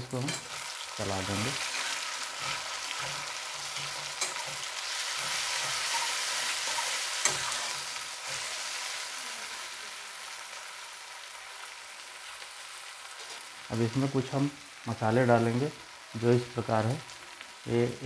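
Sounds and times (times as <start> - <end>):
tomatoes sizzling in hot oil: 0.0 - 18.0
spatula stirring and scraping: 0.1 - 9.0
spatula clacking on pan: 2.4 - 7.6.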